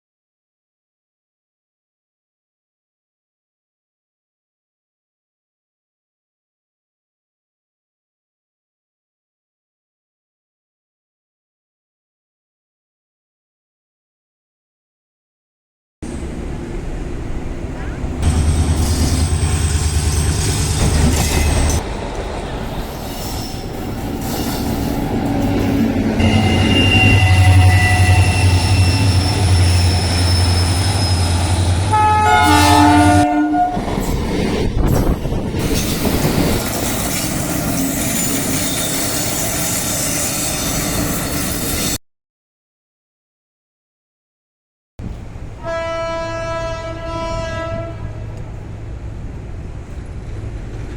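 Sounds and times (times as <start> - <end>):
train wheels clattering on rails: 18.2 - 27.5
locomotive horn blowing: 26.2 - 33.8, 45.6 - 48.4.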